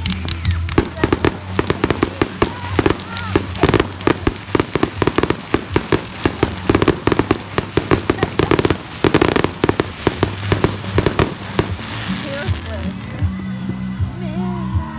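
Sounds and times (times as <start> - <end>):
fireworks bangs and crackles: 0.0 - 13.3
heavy firework booms: 0.8 - 12.8.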